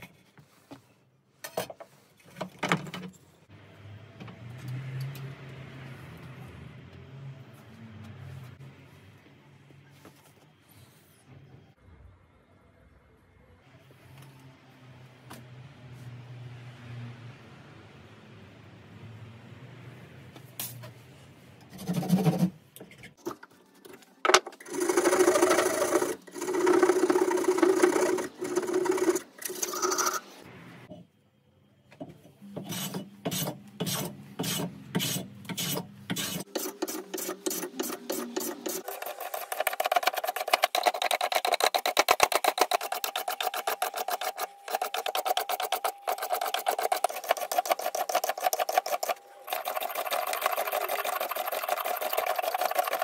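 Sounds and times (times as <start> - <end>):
file rasping on a saw: 32.6 - 53.0.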